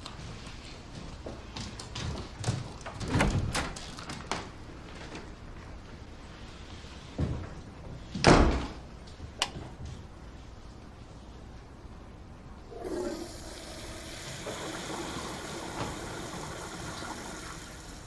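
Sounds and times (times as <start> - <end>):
door shutting with thud: 8.2 - 8.8.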